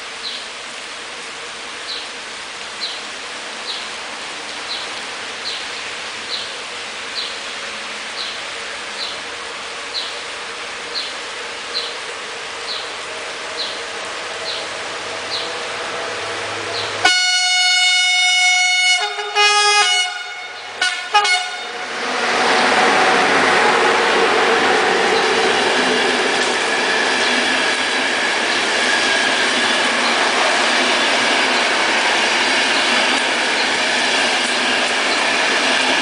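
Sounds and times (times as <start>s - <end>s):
rain: 0.0s - 36.0s
train wheels on track: 0.0s - 36.0s
train horn blasts: 13.5s - 24.6s.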